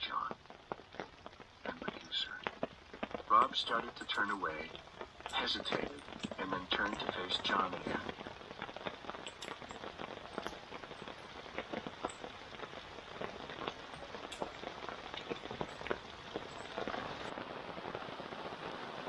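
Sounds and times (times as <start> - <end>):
rain drops tapping on tarp: 0.0 - 19.0.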